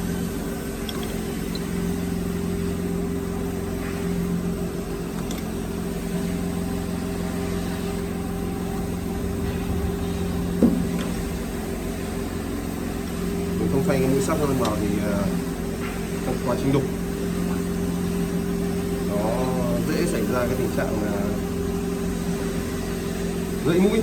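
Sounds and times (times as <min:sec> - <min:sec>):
electric motor humming: 0:00.0 - 0:24.0
sharp knock: 0:09.4 - 0:12.0.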